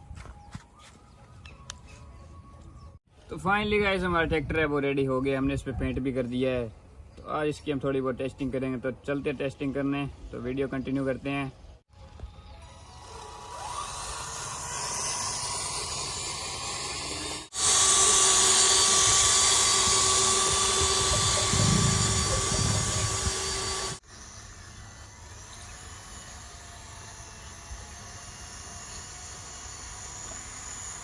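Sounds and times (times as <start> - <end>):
small gear motor whining: 11.9 - 31.0.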